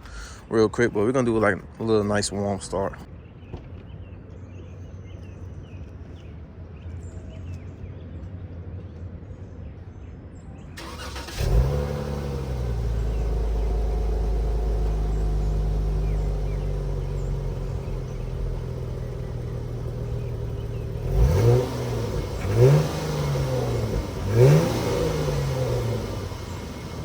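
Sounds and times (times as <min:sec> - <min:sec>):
car engine revving and idling: 0:10.8 - 0:27.0
car starter cranking: 0:10.8 - 0:27.0
low background rumble: 0:11.5 - 0:27.0.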